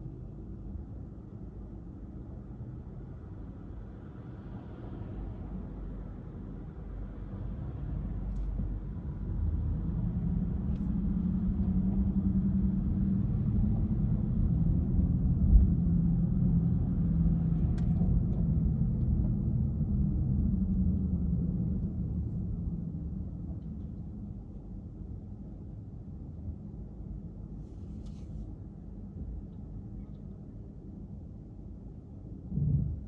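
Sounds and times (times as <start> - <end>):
car engine and tyres rumble: 0.0 - 33.0
thump: 32.5 - 33.0.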